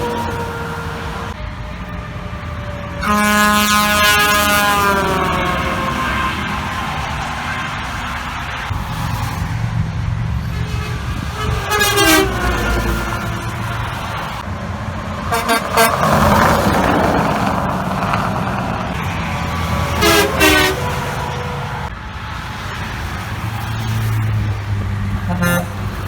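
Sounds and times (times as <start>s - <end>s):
traffic rumble: 0.0s - 26.0s
truck horn blasts: 3.0s - 6.6s, 10.8s - 13.7s, 15.2s - 19.1s, 19.8s - 21.7s, 25.1s - 26.0s.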